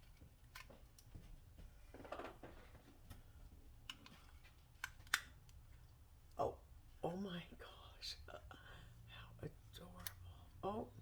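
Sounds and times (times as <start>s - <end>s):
small handling clicks: 3.9s - 5.6s.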